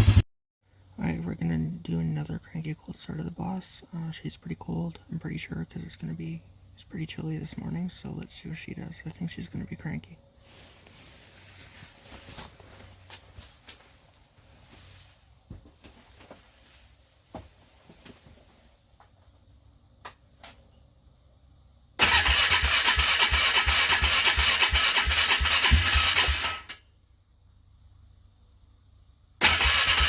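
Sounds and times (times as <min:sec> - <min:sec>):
car starter cranking engine: 0:22.0 - 0:26.9, 0:29.4 - 0:30.0.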